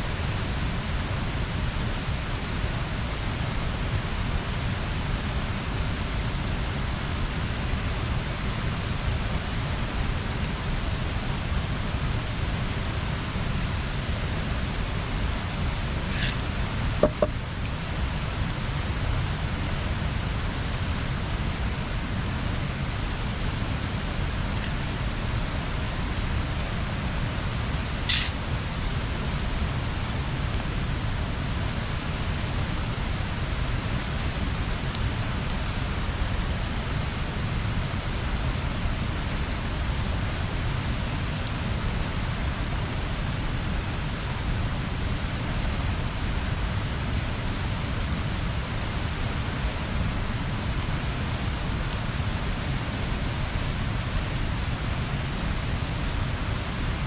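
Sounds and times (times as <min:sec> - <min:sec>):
bonfire hissing and rumbling: 0:00.0 - 0:57.0.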